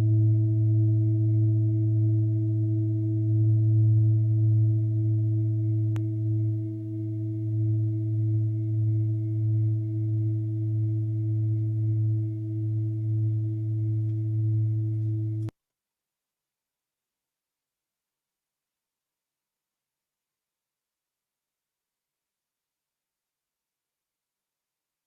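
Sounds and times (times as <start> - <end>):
low drone tone: 0.0 - 15.5.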